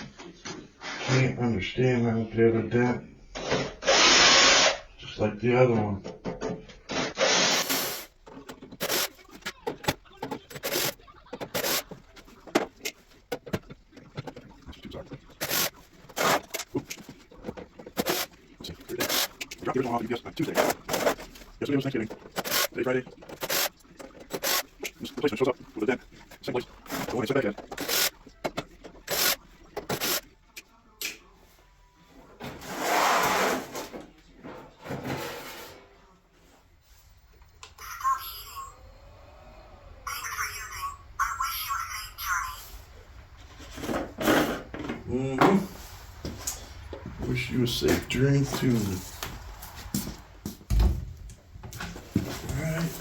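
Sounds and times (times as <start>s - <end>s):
parts scraping and rubbing: 6.2s - 30.7s, 32.2s - 36.0s, 43.2s - 50.5s.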